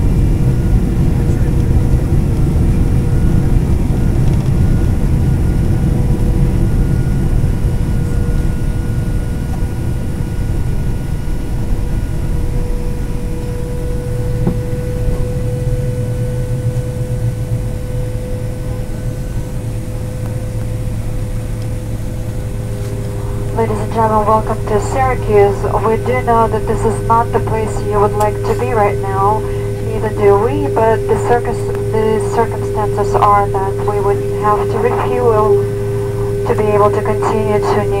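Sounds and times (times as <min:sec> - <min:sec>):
jet engines rumbling in cabin: 0:00.0 - 0:38.0.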